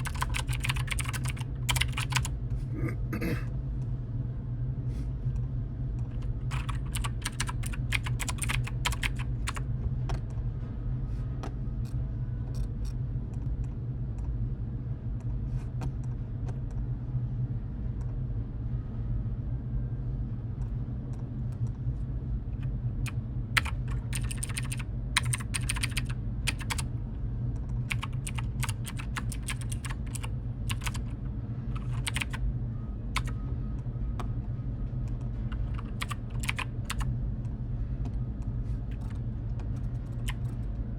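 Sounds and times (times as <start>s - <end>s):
computer keyboard typing: 0.0s - 2.3s, 6.2s - 9.6s, 23.6s - 26.9s, 27.8s - 31.2s, 31.8s - 32.4s, 33.2s - 33.4s, 35.5s - 37.1s, 38.9s - 40.6s
steady low hum: 0.0s - 40.9s.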